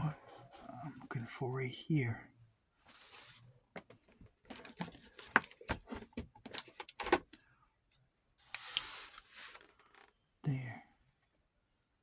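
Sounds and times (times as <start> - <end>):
brief rustle: 2.9 - 3.5, 8.5 - 10.1.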